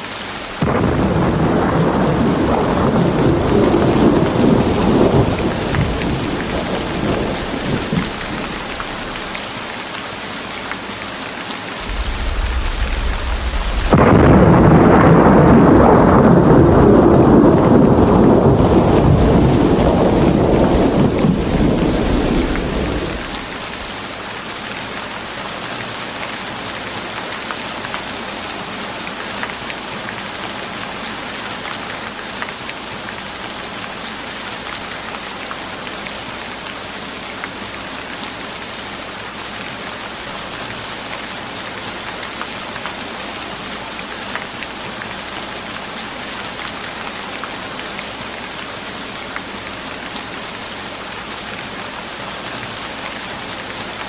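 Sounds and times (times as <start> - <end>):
steady rain: 0.0 - 54.0
thunder: 0.6 - 9.4, 11.8 - 24.0.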